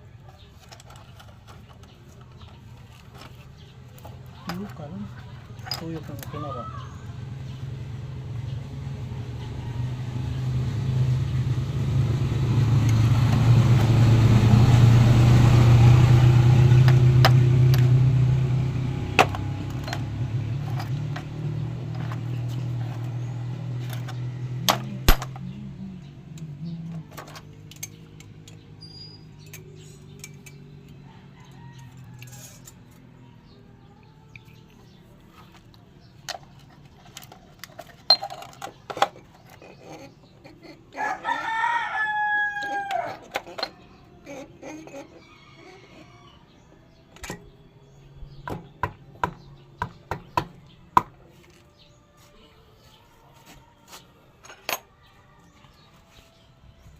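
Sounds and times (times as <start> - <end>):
motorcycle engine running: 0.4 - 31.6.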